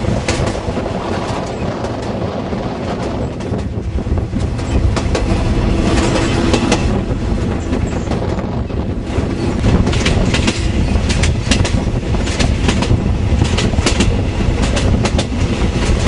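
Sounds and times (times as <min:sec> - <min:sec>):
train rumbling: 0:00.0 - 0:16.0
wheel clacks over rail joints: 0:05.9 - 0:16.0.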